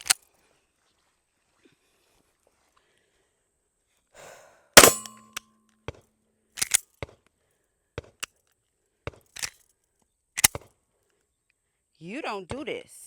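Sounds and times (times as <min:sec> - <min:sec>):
pistol shots: 0:04.8 - 0:05.2
sharp gunshot cracks: 0:04.8 - 0:05.2.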